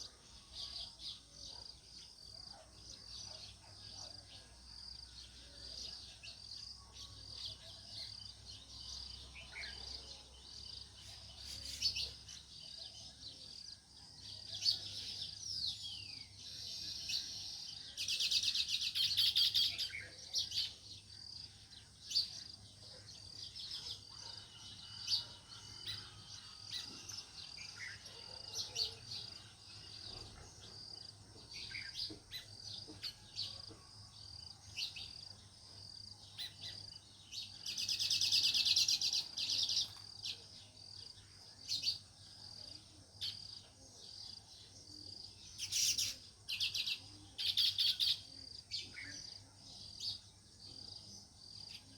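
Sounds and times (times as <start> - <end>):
sparrows chirping: 0.0 - 51.9
sparrows chattering: 10.6 - 33.7, 34.6 - 51.9.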